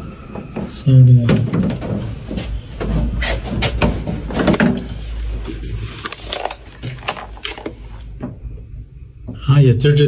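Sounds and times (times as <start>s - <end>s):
steady low hum: 0.0s - 10.0s
clicks and knocks from metal cabinet: 1.2s - 5.0s.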